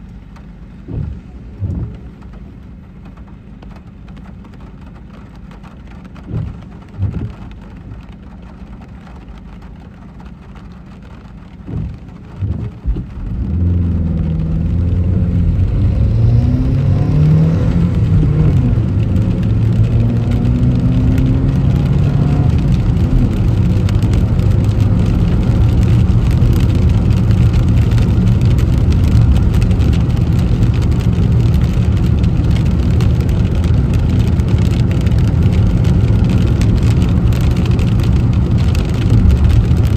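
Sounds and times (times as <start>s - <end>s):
car engine accelerating: 0.0s - 39.9s
tyre and rain noise: 0.0s - 39.9s
low thumps: 0.8s - 2.5s, 11.6s - 39.9s.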